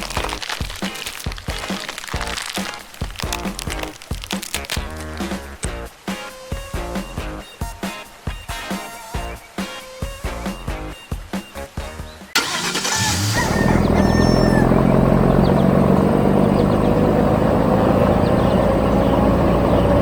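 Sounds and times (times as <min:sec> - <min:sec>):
background music: 0:03.2 - 0:13.3
excavator diesel engine starting: 0:12.4 - 0:20.0.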